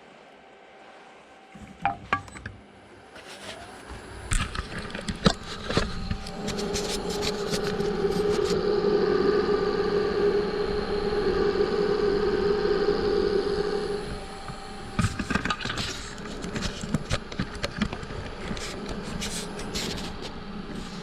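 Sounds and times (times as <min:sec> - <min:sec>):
wood lathe motor humming: 0:04.8 - 0:21.0.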